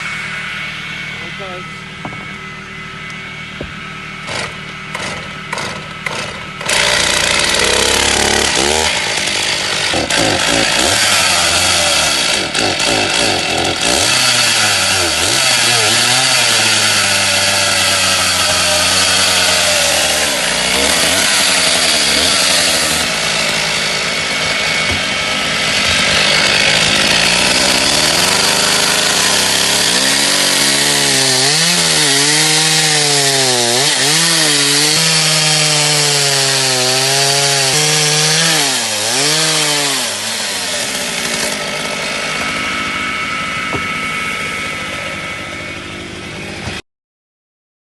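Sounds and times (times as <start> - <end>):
chainsaw engine revving: 3.0 - 46.8
chainsaw starter pulls: 4.3 - 11.1.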